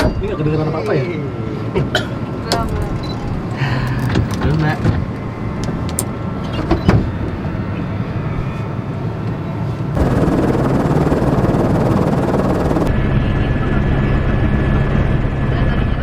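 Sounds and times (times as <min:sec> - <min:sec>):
helicopter engine and rotor drone: 0:09.2 - 0:15.9.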